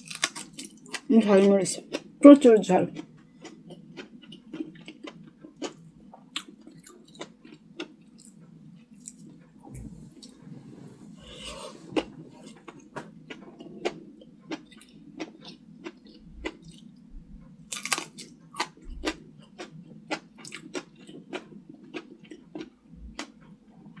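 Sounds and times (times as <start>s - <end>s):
person chewing food: 0.0s - 1.1s, 1.9s - 2.2s, 2.9s - 17.0s, 17.7s - 24.0s.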